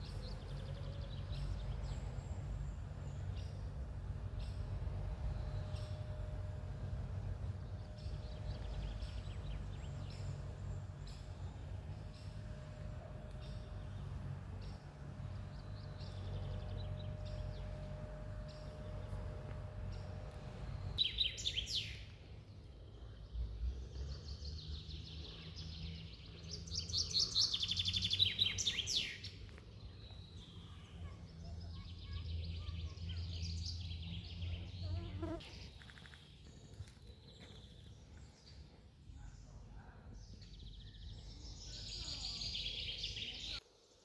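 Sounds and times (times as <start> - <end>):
steady low rumble: 0.0 - 21.0
songbirds singing: 0.0 - 44.0.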